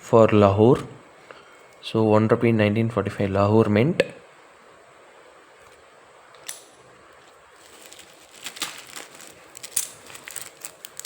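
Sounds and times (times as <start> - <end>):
packaging crinkling: 7.2 - 11.0
coins clicking: 8.6 - 11.0.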